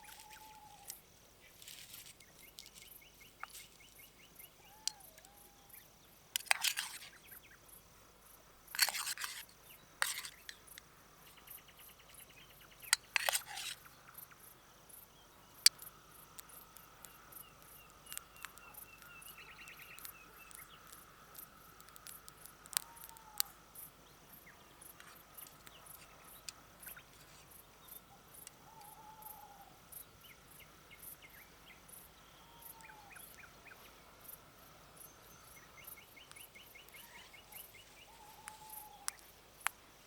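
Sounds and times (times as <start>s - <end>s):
crickets and insects chirring: 0.0s - 40.0s
rustling from handling things: 1.6s - 2.9s.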